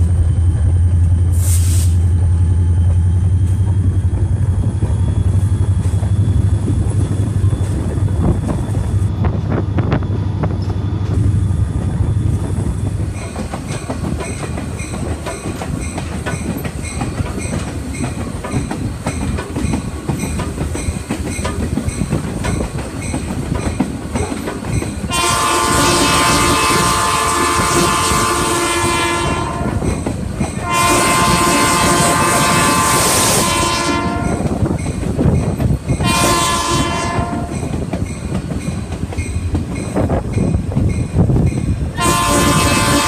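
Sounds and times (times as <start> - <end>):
train rumbling on track: 0.0 - 43.0
wheels clickety-clack: 11.8 - 28.5, 29.5 - 32.5, 34.1 - 43.0
locomotive air horn blasts: 25.1 - 29.9, 30.6 - 34.4, 36.0 - 37.5, 42.0 - 43.0.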